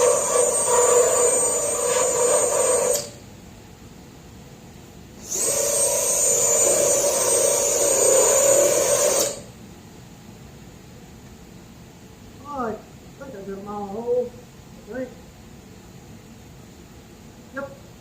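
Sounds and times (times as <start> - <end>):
rotary tool grinding metal: 0.0 - 3.2, 5.2 - 9.4.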